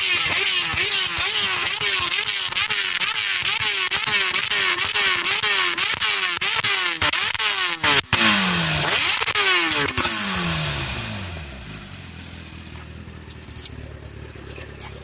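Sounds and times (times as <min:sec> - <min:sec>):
motorbikes passing by: 0:12.6 - 0:15.0.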